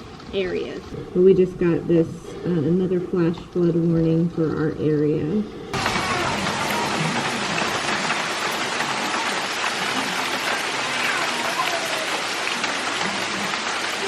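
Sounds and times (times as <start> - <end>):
heavy rain pouring: 5.8 - 14.0.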